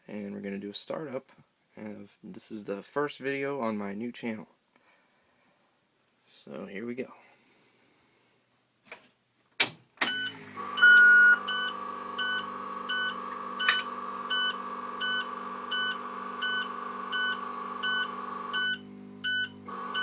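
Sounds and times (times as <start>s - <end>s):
dashboard warning chime beeps: 10.1s - 20.0s.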